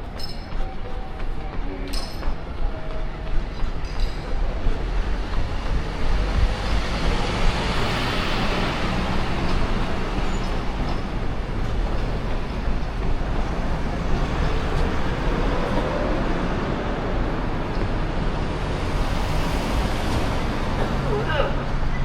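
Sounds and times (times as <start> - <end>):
city road traffic: 0.0 - 22.0
vehicle passing: 4.6 - 21.9.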